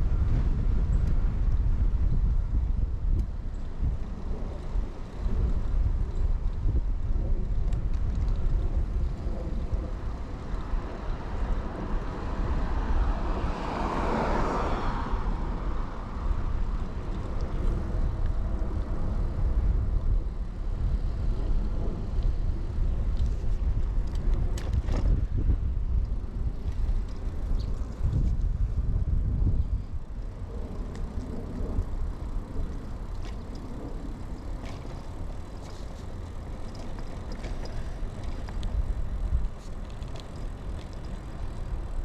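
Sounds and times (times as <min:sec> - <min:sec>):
wind rumble: 0:00.0 - 0:42.0
car passing by: 0:10.6 - 0:16.6.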